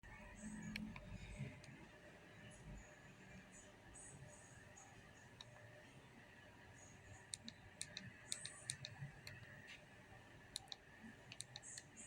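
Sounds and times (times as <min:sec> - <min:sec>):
faint sharp clicks: 0:07.3 - 0:09.8, 0:10.5 - 0:12.0.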